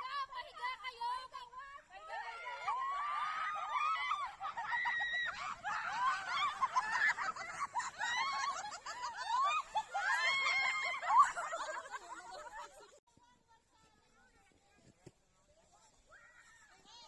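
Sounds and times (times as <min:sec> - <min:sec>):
high voices laughing and squealing: 0:02.2 - 0:13.0.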